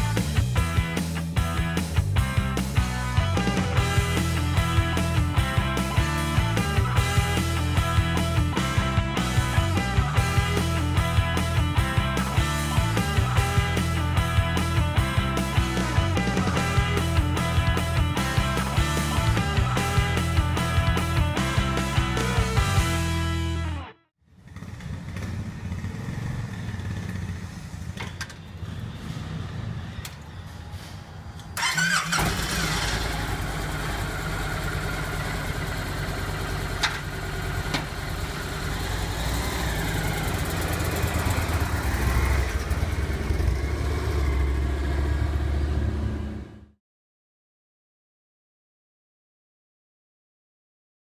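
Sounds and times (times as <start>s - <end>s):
motorcycle engine running: 24.3s - 28.0s, 31.6s - 46.7s.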